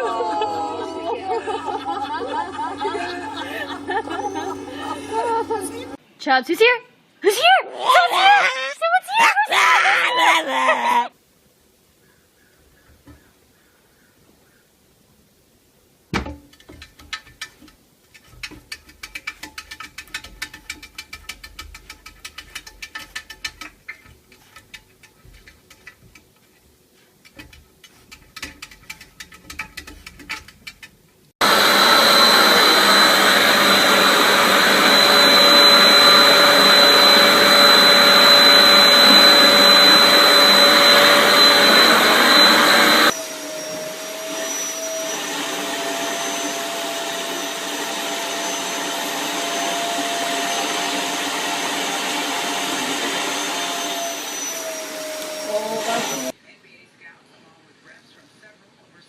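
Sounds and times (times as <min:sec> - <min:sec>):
electric appliance motor whining: 0:00.0 - 0:06.0, 0:31.4 - 0:56.4
quiet motor hum: 0:01.2 - 0:06.0.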